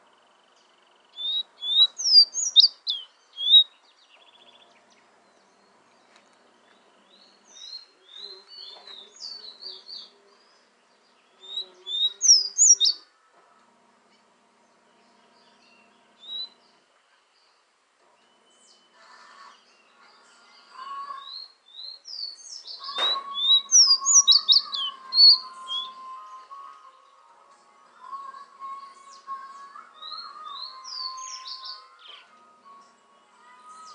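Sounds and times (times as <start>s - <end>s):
bird whistling song: 0.9s - 5.7s, 11.1s - 13.0s, 15.6s - 16.6s, 21.2s - 26.5s, 29.9s - 32.4s.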